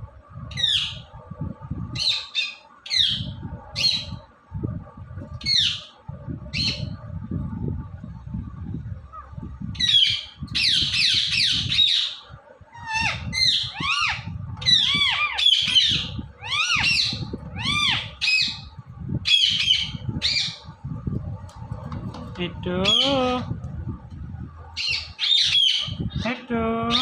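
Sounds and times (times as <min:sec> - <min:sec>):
parakeet squawking: 0:00.5 - 0:01.1, 0:02.0 - 0:04.2, 0:05.4 - 0:05.9, 0:06.5 - 0:06.9, 0:09.8 - 0:20.6, 0:22.8 - 0:23.4, 0:24.8 - 0:26.3.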